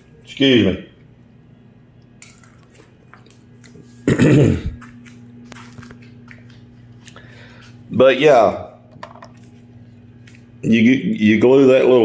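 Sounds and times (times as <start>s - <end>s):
low steady hum: 0.0s - 12.0s
man clearing throat: 4.0s - 4.8s.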